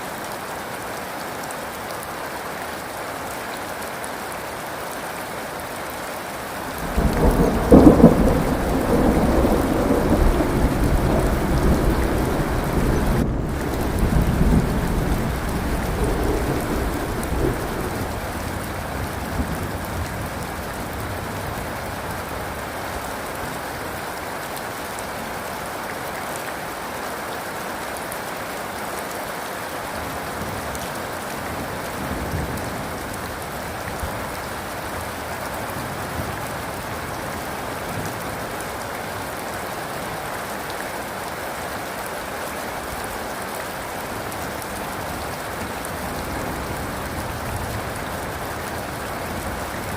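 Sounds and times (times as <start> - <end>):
steady rain falling: 0.0 - 49.9
thunder rumble: 6.8 - 21.0.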